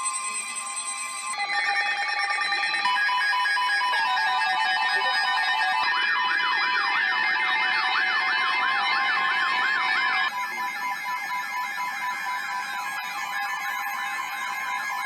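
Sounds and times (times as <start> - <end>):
siren-like wail: 3.1 - 15.0.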